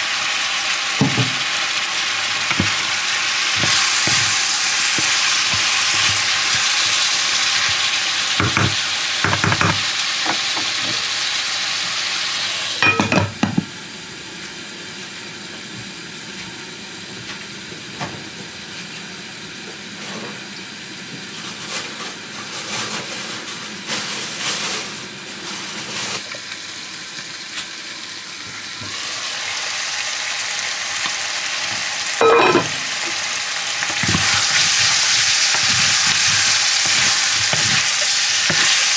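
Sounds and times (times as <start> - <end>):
meat sizzling in a frying pan: 0.0 - 17.6, 18.6 - 38.9
spoon knocking against pan: 8.4 - 9.8
glass lid clanking: 12.8 - 13.6, 32.2 - 32.8.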